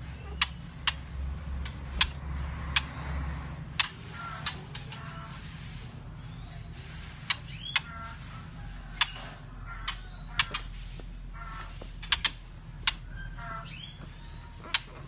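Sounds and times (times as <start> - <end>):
bird clicking calls: 0.3 - 3.1, 3.7 - 5.1, 7.2 - 8.2, 9.0 - 10.8, 11.4 - 15.0.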